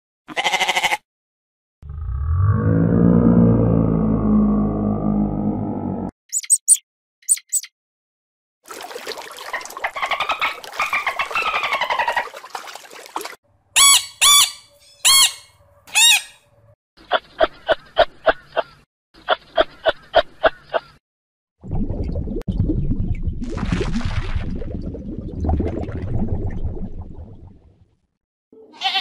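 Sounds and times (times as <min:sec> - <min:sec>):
macaw squawking: 0:06.3 - 0:07.7, 0:10.0 - 0:12.2, 0:13.8 - 0:16.4
short high chirps: 0:06.3 - 0:07.7, 0:13.8 - 0:16.4
parrot chattering: 0:13.8 - 0:16.4.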